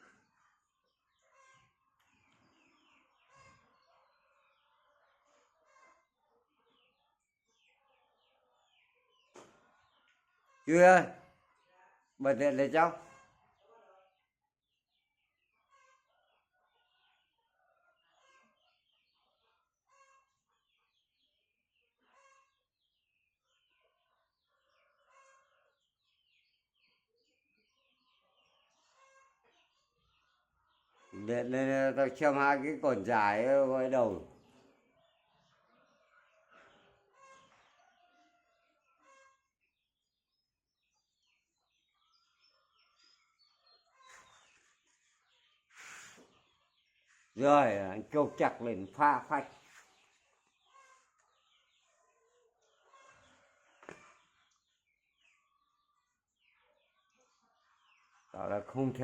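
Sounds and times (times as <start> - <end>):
faint bird chirps: 0.0 - 11.6, 14.9 - 31.4, 34.0 - 59.0
bird chirps: 39.0 - 59.0.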